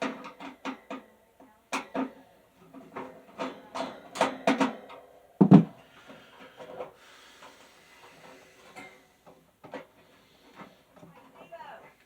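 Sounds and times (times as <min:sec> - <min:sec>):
fan parts knocking and clattering: 0:00.0 - 0:01.1, 0:01.7 - 0:07.6
loud thump: 0:05.4 - 0:05.7.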